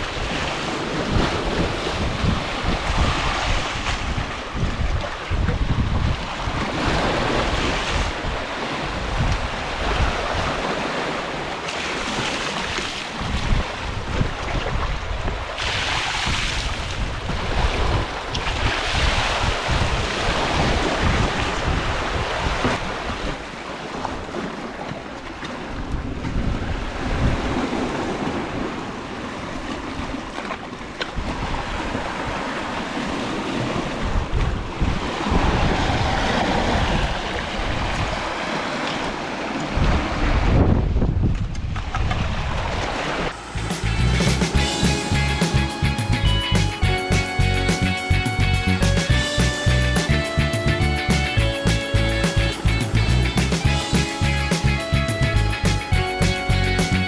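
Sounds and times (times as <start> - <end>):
wind buffeting microphone: 0.0 - 23.4, 25.7 - 28.8, 33.0 - 38.3, 39.7 - 49.6
waves washing against rocks: 0.0 - 40.7.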